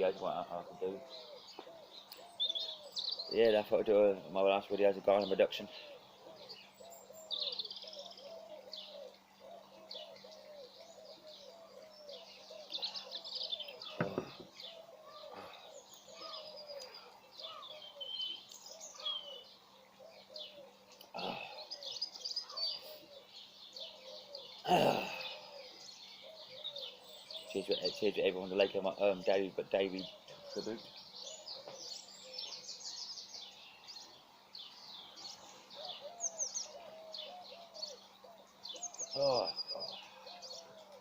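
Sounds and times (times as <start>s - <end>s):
birds chirping and singing: 0.0s - 41.0s
short knocks: 14.0s - 14.5s.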